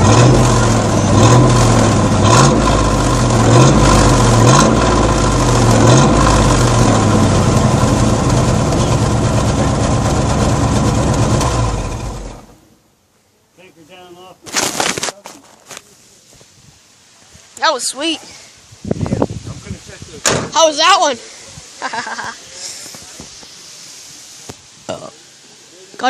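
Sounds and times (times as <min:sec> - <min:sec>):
truck engine revving: 0:00.0 - 0:12.6.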